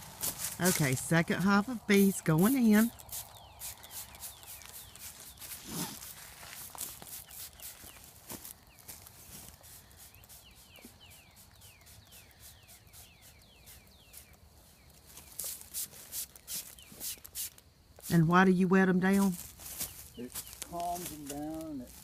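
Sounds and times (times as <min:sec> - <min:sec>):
bird chirping: 0:00.6 - 0:17.4, 0:18.1 - 0:21.9
hand sprayer squirts: 0:01.6 - 0:08.0
rustling: 0:02.7 - 0:18.1.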